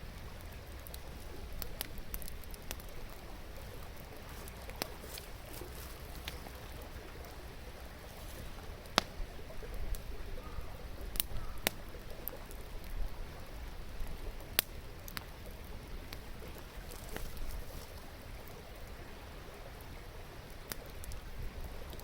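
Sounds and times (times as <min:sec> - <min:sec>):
campfire crackling and popping: 0:00.0 - 0:10.3, 0:11.0 - 0:19.0, 0:19.8 - 0:22.0
river water flowing: 0:00.0 - 0:22.0.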